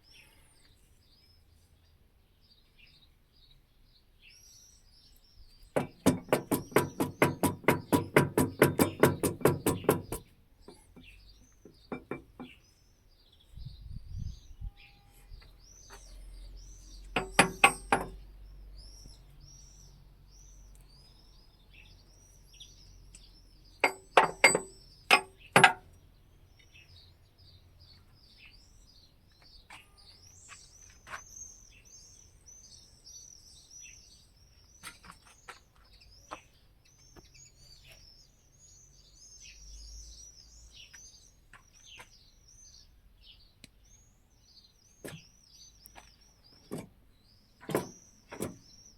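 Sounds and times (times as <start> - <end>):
small birds chirping: 0.0 - 48.9
sharp metallic clinks: 17.2 - 18.2, 23.8 - 25.9.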